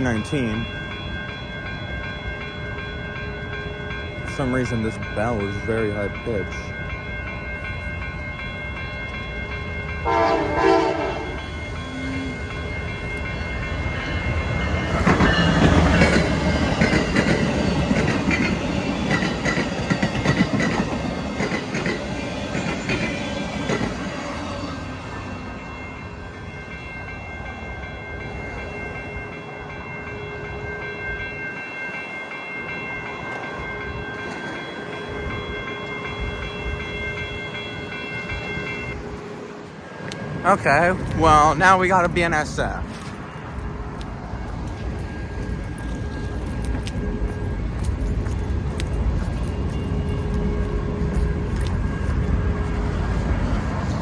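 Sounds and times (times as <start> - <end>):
train bell ringing: 0.0 - 54.0
train horn blast: 10.0 - 12.6
train wheel clatter: 14.0 - 24.3.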